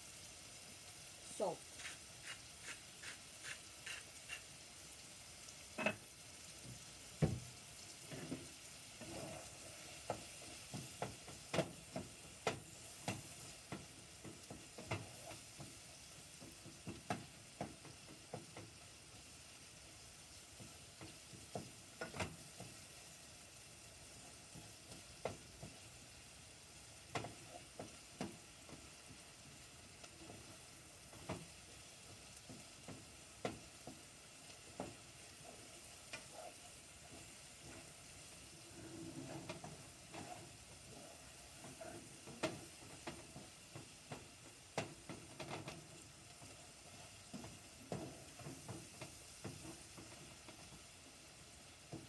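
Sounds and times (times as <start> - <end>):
food sizzling in butter: 0.0 - 52.0
spatula scraping and tapping pot: 1.7 - 4.5, 5.8 - 6.8, 8.1 - 15.8, 20.6 - 22.8, 32.4 - 38.0, 38.6 - 50.8.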